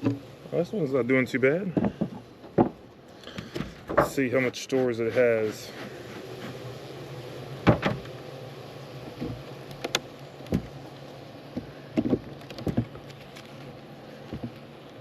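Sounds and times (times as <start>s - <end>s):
wooden hive parts knocking: 0.0s - 0.3s, 1.6s - 4.6s, 7.6s - 8.1s, 9.1s - 14.7s
honeybees buzzing: 0.0s - 15.0s.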